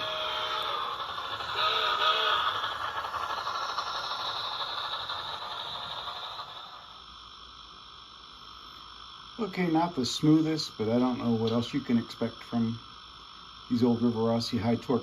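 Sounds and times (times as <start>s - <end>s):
model train running gear rattle: 0.0s - 7.0s
steam chuffing and hiss from speaker: 0.0s - 15.0s.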